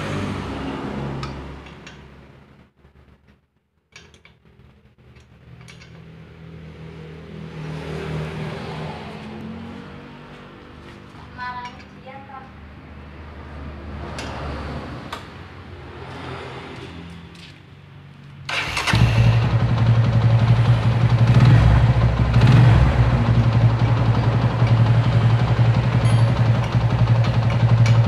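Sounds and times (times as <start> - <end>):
motorcycle engine starting and idling: 18.3 - 28.0.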